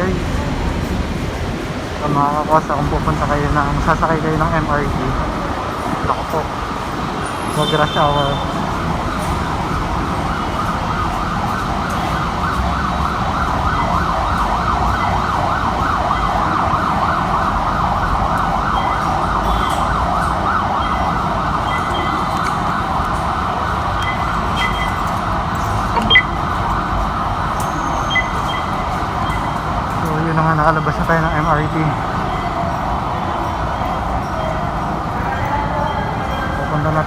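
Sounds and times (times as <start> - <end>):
traffic rumble: 0.0 - 37.0
siren wailing: 2.0 - 37.0.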